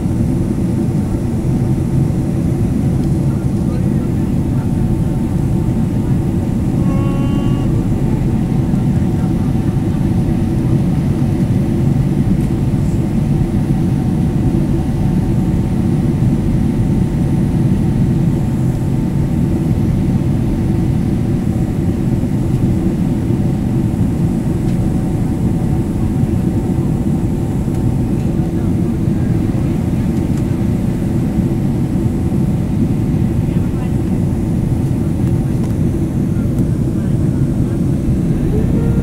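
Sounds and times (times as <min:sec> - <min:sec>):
steady hums: 0:00.0 - 0:15.4, 0:16.0 - 0:39.0
airplane cabin engine rumble: 0:00.0 - 0:39.0
short pitched tone: 0:06.7 - 0:08.0, 0:38.4 - 0:39.0.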